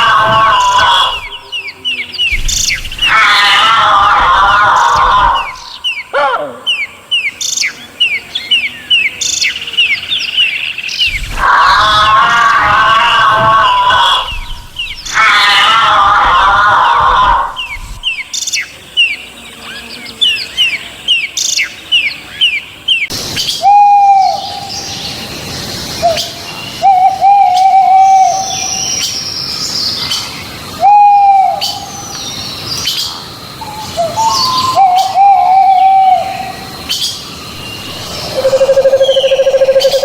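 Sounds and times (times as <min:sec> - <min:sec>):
quick falling bird chirps: 0:00.0 - 0:06.8, 0:10.8 - 0:18.6, 0:23.0 - 0:40.0
bird hooting calls: 0:00.0 - 0:18.4, 0:23.1 - 0:40.0
loud bird cry: 0:00.0 - 0:40.0.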